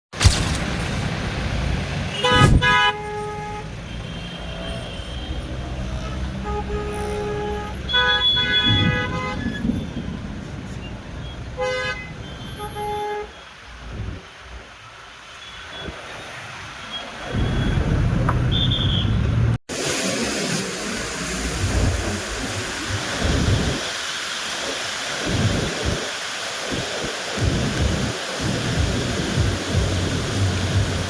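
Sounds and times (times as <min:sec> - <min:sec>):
road traffic rumble: 0:00.2 - 0:31.0
vehicle horns honking: 0:02.1 - 0:10.0, 0:11.6 - 0:13.4, 0:16.9 - 0:19.4.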